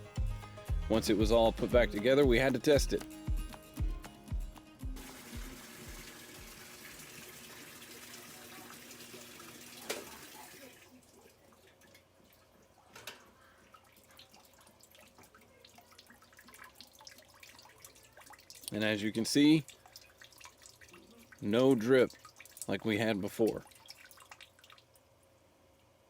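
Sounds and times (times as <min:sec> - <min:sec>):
water rushing into washing machine: 0:05.0 - 0:11.0.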